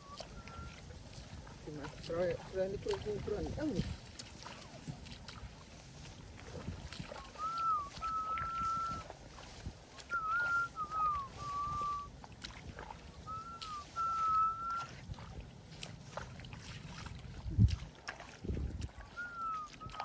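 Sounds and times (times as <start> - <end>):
person whistling: 0.0 - 0.8, 7.2 - 9.1, 10.1 - 12.1, 13.3 - 14.9, 19.2 - 20.0.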